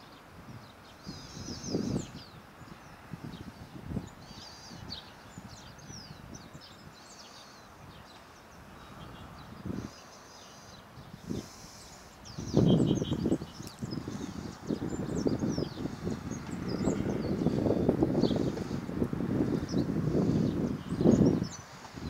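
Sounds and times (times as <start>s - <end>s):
birds chirping and twittering: 0.0s - 22.0s.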